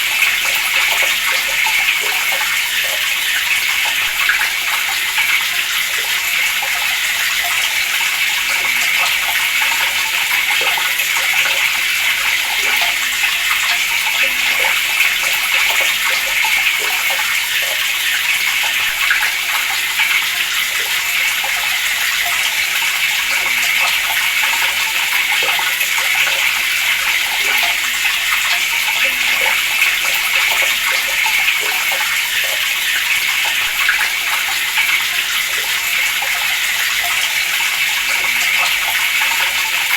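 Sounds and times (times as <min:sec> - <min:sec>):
water running from a tap: 0:00.0 - 0:39.9.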